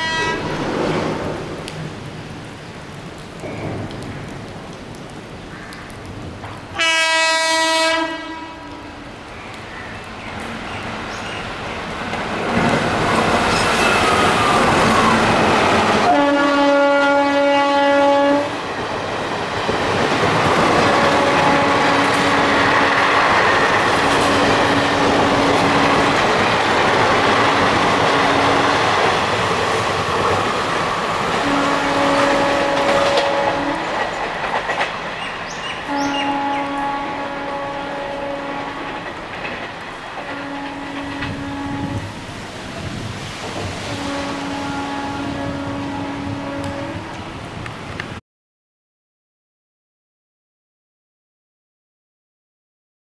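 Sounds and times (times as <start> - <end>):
locomotive horn blasts: 0.0 - 0.6, 6.8 - 9.0, 16.0 - 18.6, 21.0 - 22.9, 31.4 - 34.0, 35.9 - 38.9, 40.2 - 42.2, 43.9 - 47.2
train wheels clattering: 32.2 - 36.2, 38.6 - 41.4.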